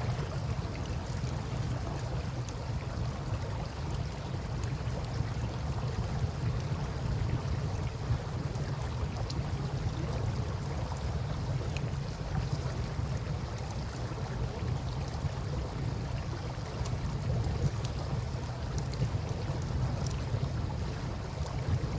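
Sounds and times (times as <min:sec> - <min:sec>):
campfire crackling and popping: 0:00.0 - 0:21.9.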